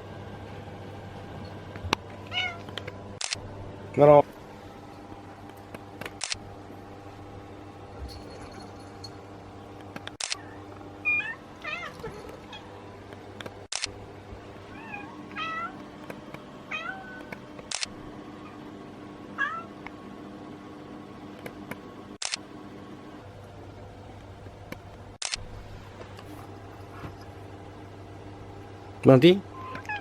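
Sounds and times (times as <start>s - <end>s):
cat meowing: 2.3s - 2.7s, 10.4s - 12.6s, 14.7s - 15.8s, 16.7s - 17.3s, 19.4s - 19.7s, 29.5s - 30.0s
sharp clicks: 2.8s - 3.4s, 5.7s - 6.4s, 9.8s - 10.4s, 13.4s - 13.9s, 17.2s - 17.9s, 21.4s - 22.4s, 24.7s - 25.4s.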